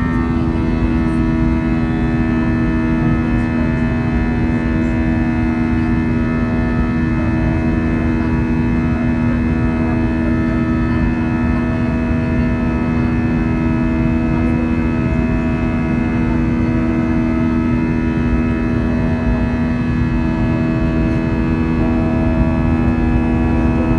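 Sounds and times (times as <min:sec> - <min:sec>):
droning tones: 0:00.0 - 0:23.9
jet engine and cabin air hum: 0:00.0 - 0:23.9
low rumble: 0:18.4 - 0:23.9.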